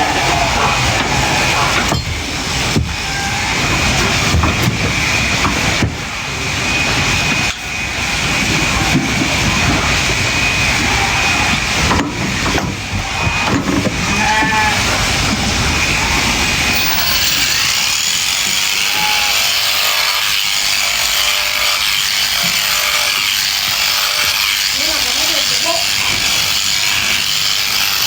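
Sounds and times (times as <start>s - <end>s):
sheep bleating: 14.1s - 15.0s
electric clippers buzzing: 15.8s - 28.0s.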